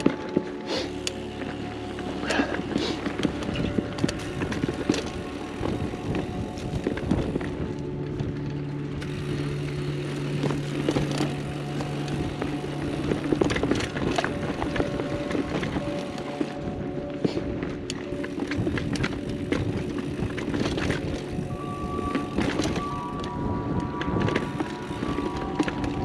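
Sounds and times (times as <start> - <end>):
bike frame rattling and clicking: 0.0 - 26.0
bike tyres rolling on dirt: 0.0 - 26.0
steady buzzing tone: 0.0 - 26.0.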